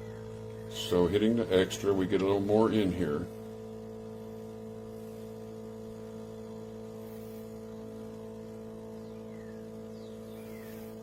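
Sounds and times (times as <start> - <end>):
espresso machine pump humming: 0.0 - 11.0.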